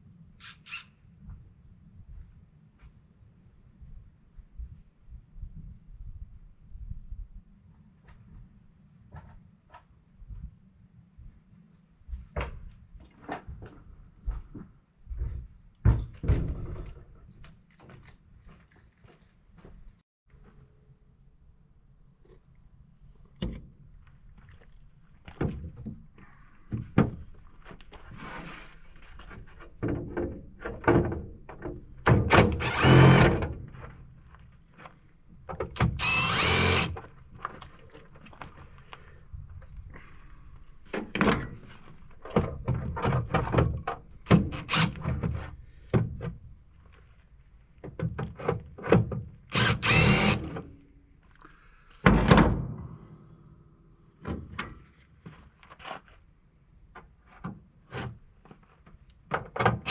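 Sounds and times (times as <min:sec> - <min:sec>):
power drill bursts: 0:32.4 - 0:33.4, 0:35.9 - 0:37.0, 0:44.6 - 0:45.0, 0:49.5 - 0:50.6.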